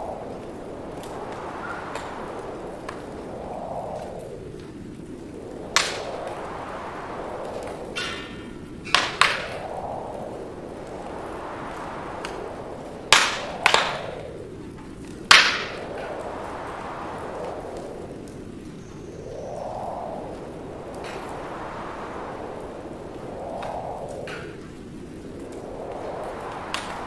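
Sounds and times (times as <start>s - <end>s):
burning logs popping: 0.0s - 18.9s
wind rushing: 0.0s - 27.0s
wood fire crackling: 0.0s - 27.0s.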